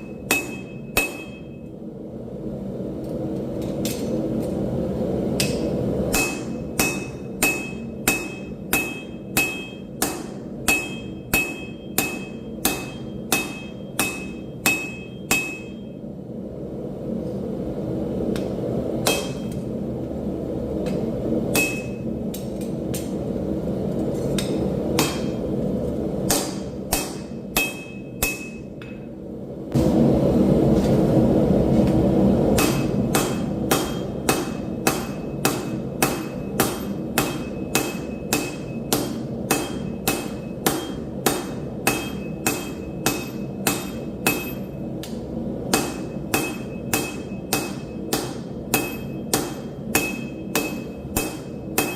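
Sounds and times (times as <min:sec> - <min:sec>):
hammer blows on steel anvil: 0:00.0 - 0:01.6, 0:05.4 - 0:16.0, 0:26.3 - 0:29.0, 0:45.7 - 0:51.9.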